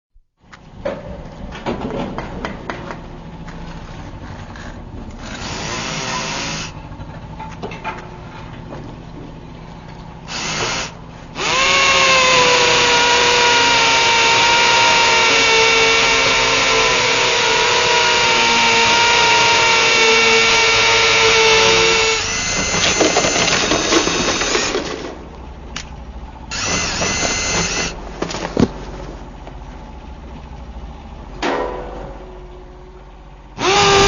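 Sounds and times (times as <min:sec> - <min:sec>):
electric drill whining: 0:05.2 - 0:06.8, 0:10.3 - 0:24.8, 0:26.5 - 0:28.0, 0:33.6 - 0:34.0.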